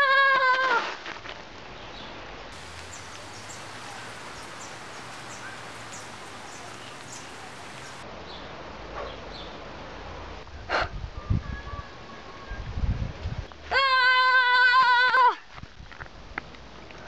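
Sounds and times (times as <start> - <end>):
background hiss: 2.5 - 8.0
small birds chirping: 2.6 - 8.0.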